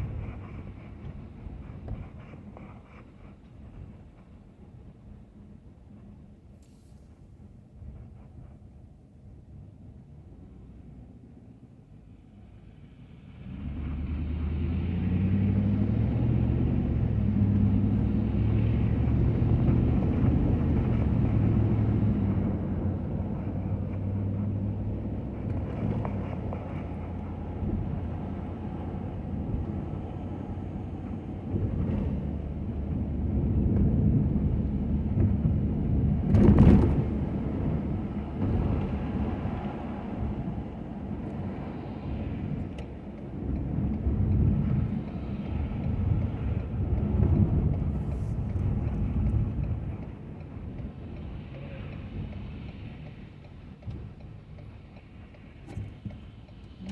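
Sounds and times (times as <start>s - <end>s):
road rumble: 0.0s - 56.9s
truck engine drone: 12.5s - 56.9s.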